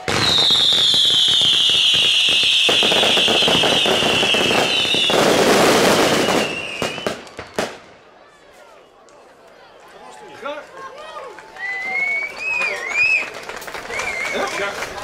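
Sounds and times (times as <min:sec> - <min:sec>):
loud falling whistle: 0:00.0 - 0:05.2, 0:11.6 - 0:13.3
firework bangs: 0:00.0 - 0:08.0
fireworks crackling and bursting: 0:00.0 - 0:08.1.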